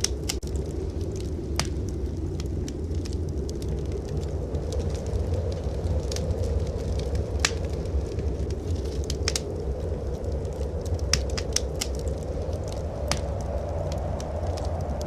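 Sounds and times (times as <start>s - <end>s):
low rumble: 0.0s - 15.0s
wood fire crackling: 0.0s - 15.0s.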